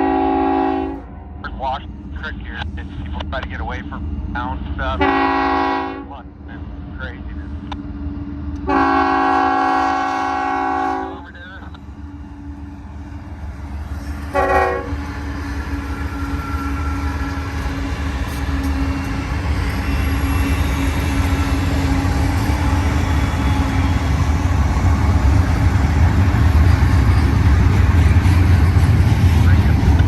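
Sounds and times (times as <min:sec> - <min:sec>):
locomotive horn blast: 0:00.0 - 0:01.1, 0:04.9 - 0:06.2, 0:08.6 - 0:11.3, 0:14.3 - 0:15.0
train rumbling: 0:00.0 - 0:30.0.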